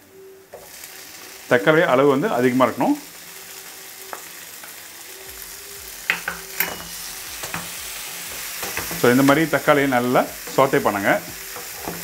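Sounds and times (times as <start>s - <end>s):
vegetables sizzling in oil: 0.0s - 12.0s
spatula scraping a pan: 6.4s - 12.0s.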